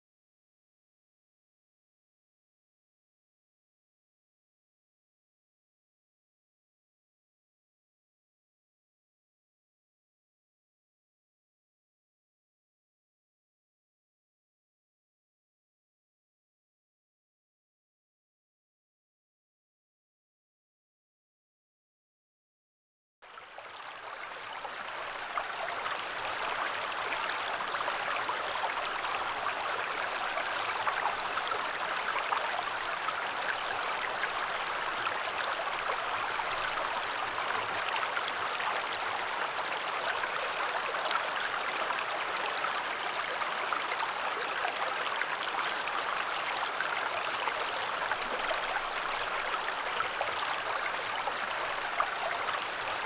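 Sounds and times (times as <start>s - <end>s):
river water rushing: 44.4s - 51.1s.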